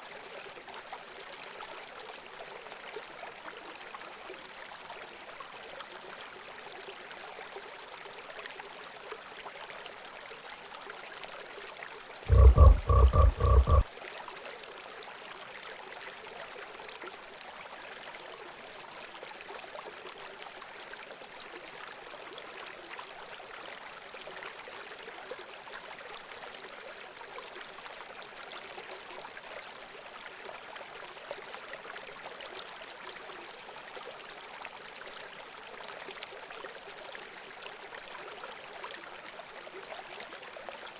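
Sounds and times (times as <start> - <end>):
frog croak: 12.3 - 13.8.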